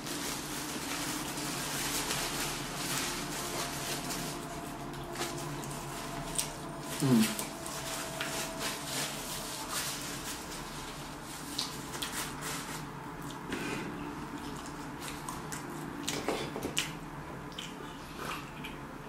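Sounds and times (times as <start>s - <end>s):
paper wrapper crinkling: 0.0s - 12.9s
person chewing: 13.2s - 18.8s.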